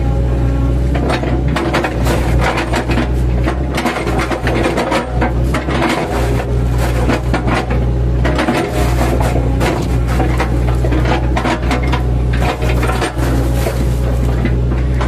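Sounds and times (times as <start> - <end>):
excavator engine running: 0.0 - 15.0
bucket chopping wood trunks: 1.0 - 15.0.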